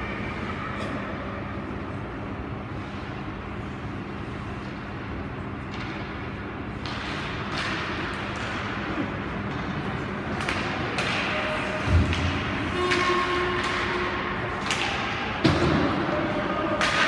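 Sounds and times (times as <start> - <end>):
hockey sticks knocking pucks: 5.7 - 17.0.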